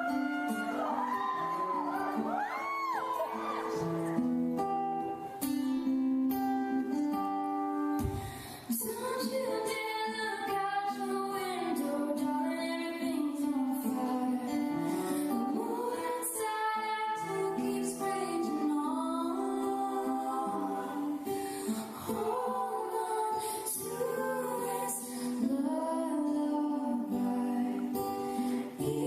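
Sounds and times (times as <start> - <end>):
woman singing: 0.0 - 3.9, 8.6 - 29.0
acoustic guitar: 0.0 - 29.0.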